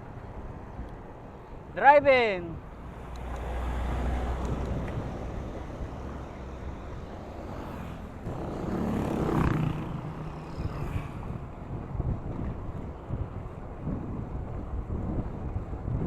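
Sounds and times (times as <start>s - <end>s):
rumble of wind and traffic: 0.0s - 16.0s
motor vehicle passing: 2.7s - 13.0s.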